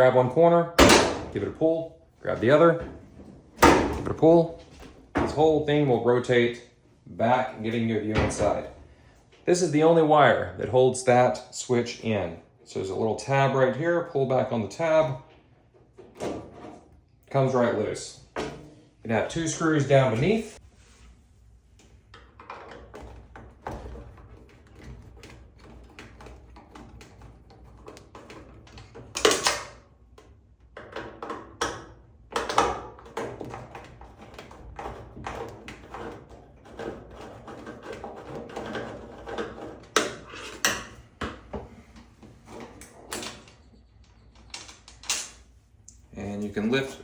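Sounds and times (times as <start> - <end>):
parts being handled: 18.3 - 46.6.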